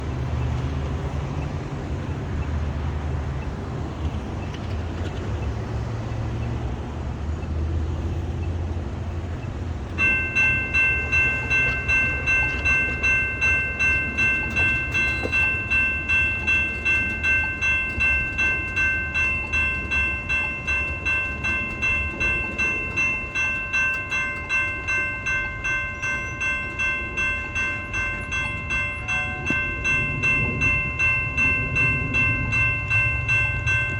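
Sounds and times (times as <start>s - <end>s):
railroad crossing bells ringing: 0.0s - 33.9s
road traffic rumble: 0.0s - 33.9s.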